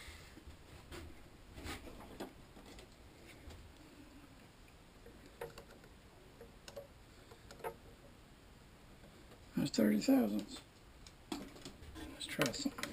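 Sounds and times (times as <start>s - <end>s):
faint clicks and taps: 4.6s - 8.1s, 10.3s - 12.9s.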